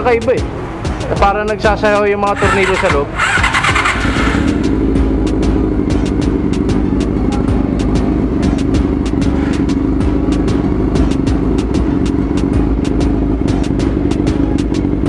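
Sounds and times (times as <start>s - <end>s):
light engine ticking: 0.0s - 15.0s
motorcycle engine idling: 0.0s - 15.0s.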